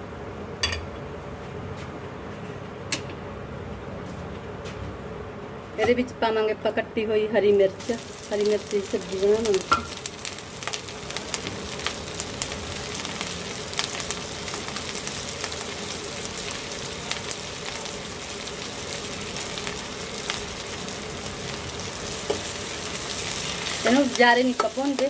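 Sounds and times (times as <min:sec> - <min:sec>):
food sizzling in hot oil: 0:07.8 - 0:25.0
small crackles: 0:07.9 - 0:18.0.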